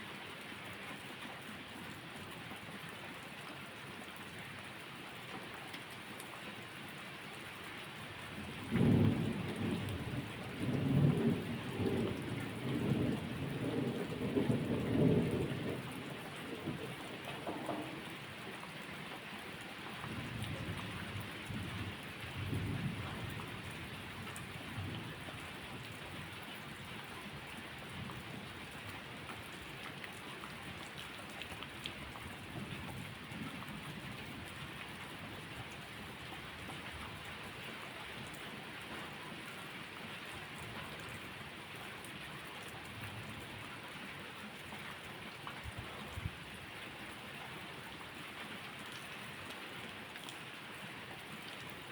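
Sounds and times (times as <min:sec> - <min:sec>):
steady rain falling: 0:00.0 - 0:51.9
thunder rolling: 0:10.6 - 0:18.2.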